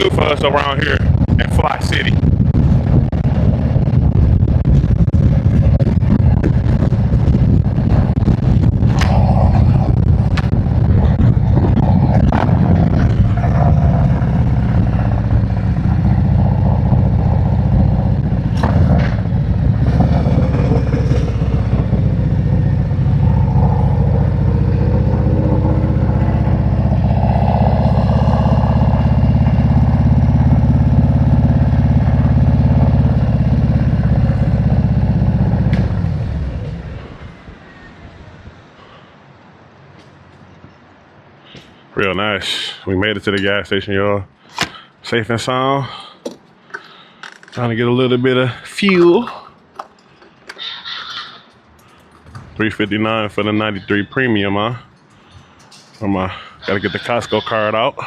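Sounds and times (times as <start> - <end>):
motorcycle engine running: 0.0 - 37.3.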